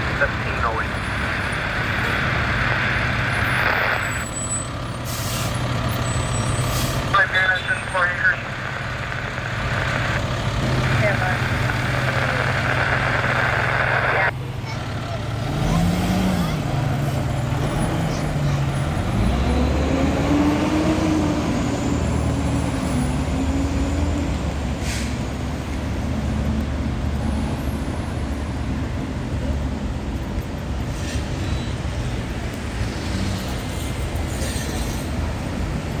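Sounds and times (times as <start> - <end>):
diesel engine running: 0.0 - 24.4.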